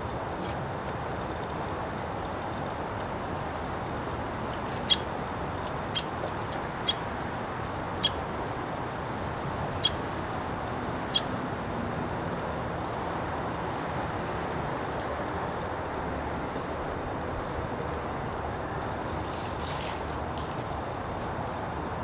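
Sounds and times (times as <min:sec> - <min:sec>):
woodpecker sharp pik calls: 0:06.0 - 0:06.2, 0:08.0 - 0:08.2, 0:09.4 - 0:12.6.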